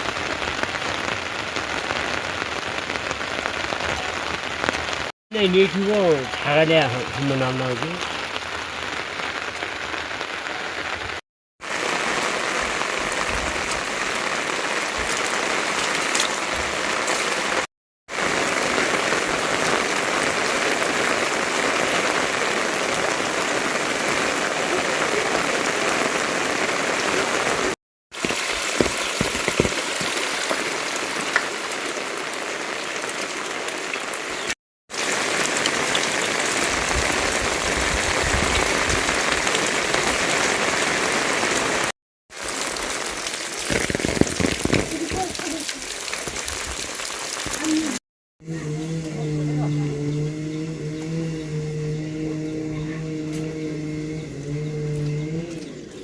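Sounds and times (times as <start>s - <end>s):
steady rain hiss: 0.0s - 48.0s
sharp raindrop hits: 11.6s - 34.2s, 34.9s - 48.0s.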